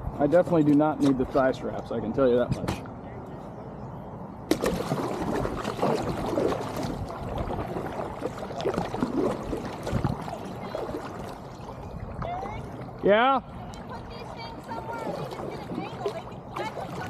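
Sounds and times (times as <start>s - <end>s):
kayak paddle splashing: 4.5s - 17.0s.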